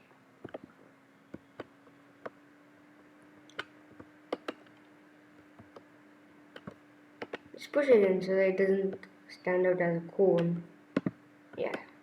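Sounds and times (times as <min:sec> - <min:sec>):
faint steady hum: 0:00.0 - 0:12.0
mouse and keyboard clicks: 0:04.3 - 0:04.8.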